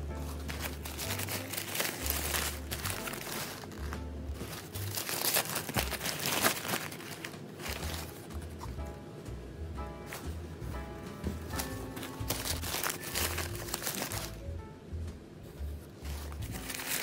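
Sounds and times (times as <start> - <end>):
background music with bass: 0.0 - 6.2, 7.7 - 17.0
packaging crinkling and rustling: 0.2 - 8.6, 11.5 - 14.4, 16.0 - 17.0.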